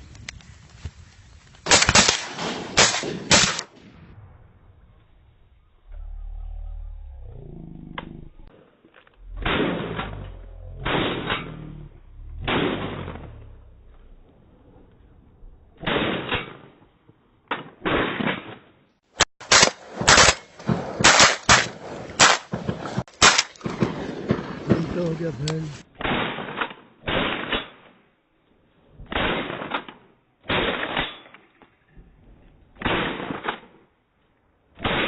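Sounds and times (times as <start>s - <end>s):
shotgun blasts: 1.7s - 3.9s, 9.3s - 10.2s, 12.4s - 13.3s, 15.8s - 16.8s, 19.4s - 27.8s, 29.0s - 29.9s
rapid sharp bangs: 19.4s - 26.6s.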